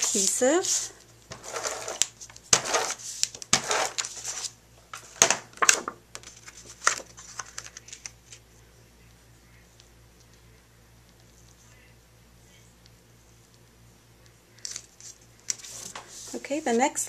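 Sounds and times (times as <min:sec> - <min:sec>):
paper handling: 0:00.0 - 0:08.7, 0:14.5 - 0:17.0.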